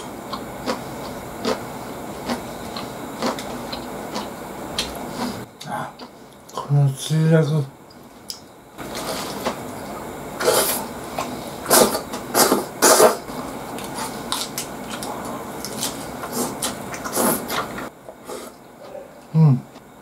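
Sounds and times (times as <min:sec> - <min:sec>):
wet crunchy chewing: 0:00.3 - 0:05.4, 0:13.3 - 0:19.0.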